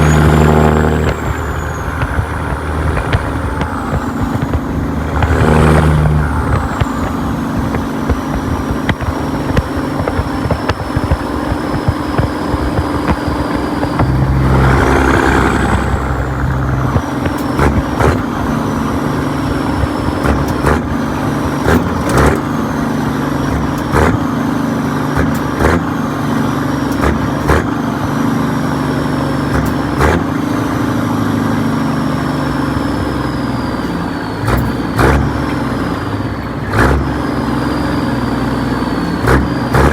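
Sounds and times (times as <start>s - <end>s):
high turbo whistle: 0.0s - 8.5s, 10.4s - 23.5s
diesel truck engine pulling away: 0.0s - 39.9s.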